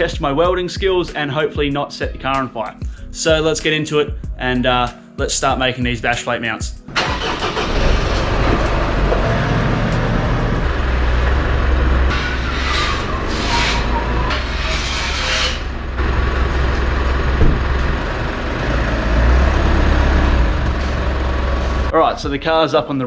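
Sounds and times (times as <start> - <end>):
car engine running at low revs: 7.6 - 12.1, 15.7 - 21.9.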